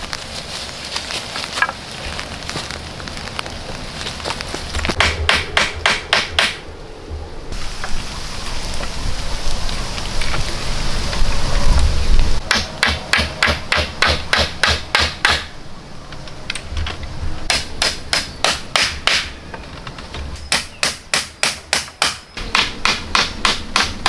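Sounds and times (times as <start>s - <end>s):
rushing noise: 0.0s - 14.6s
hammer blows: 4.9s - 6.7s.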